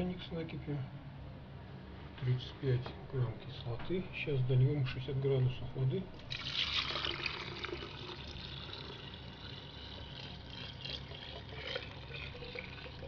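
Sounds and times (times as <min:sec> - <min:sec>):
water pouring into a kettle: 0:06.3 - 0:13.0.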